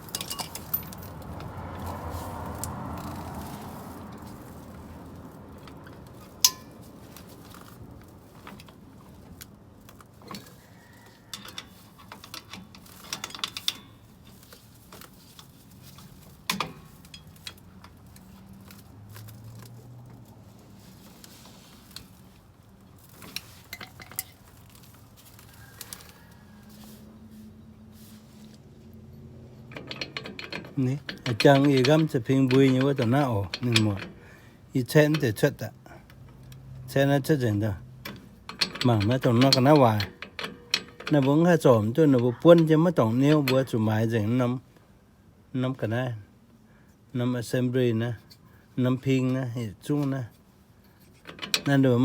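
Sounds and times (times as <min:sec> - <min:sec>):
sharp metal clank: 0:06.4 - 0:06.8.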